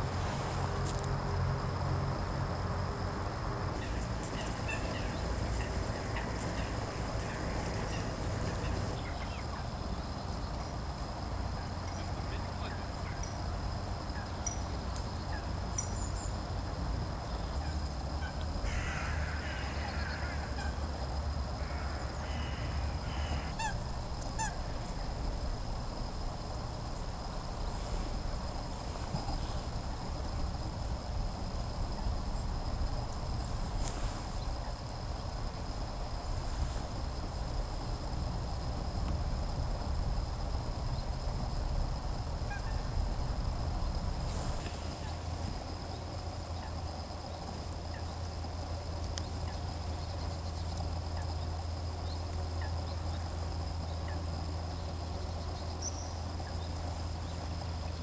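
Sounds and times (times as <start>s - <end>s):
geese honking: 3.8s - 9.4s, 21.6s - 24.8s
small birds chirping: 3.8s - 9.6s.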